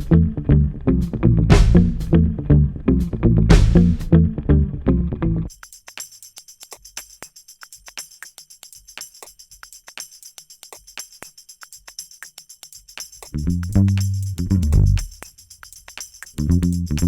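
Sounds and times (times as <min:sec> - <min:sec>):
low bass notes: 0:00.0 - 0:05.5, 0:13.4 - 0:15.0, 0:16.4 - 0:17.0
light tambourine-like percussion: 0:05.5 - 0:17.0.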